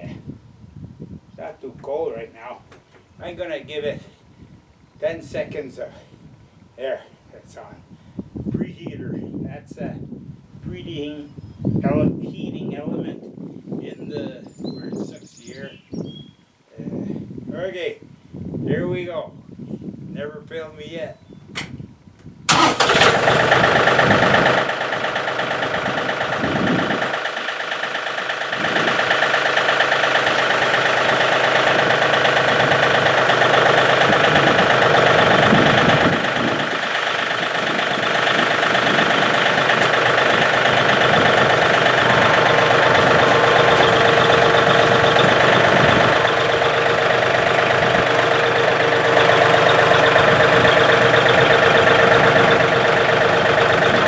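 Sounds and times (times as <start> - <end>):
tractor diesel engine idling: 22.5 - 54.0.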